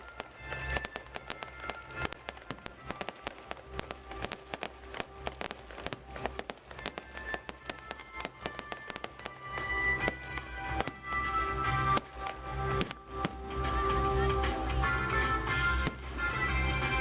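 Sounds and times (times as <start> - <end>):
fireworks crackling and banging: 0.0 - 17.0
music with low bass: 9.0 - 17.0.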